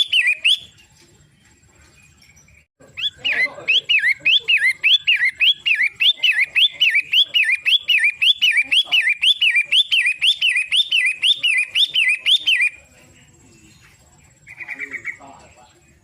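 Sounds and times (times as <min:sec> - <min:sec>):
shrike chirping: 0:00.0 - 0:00.8, 0:02.0 - 0:12.9.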